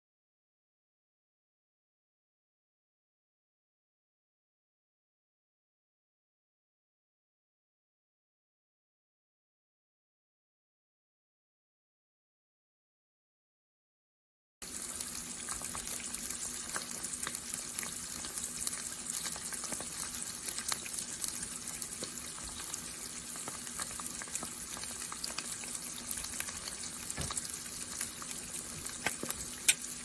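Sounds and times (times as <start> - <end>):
food sizzling in hot oil: 14.6 - 30.0
oil crackles and pops: 14.6 - 30.0.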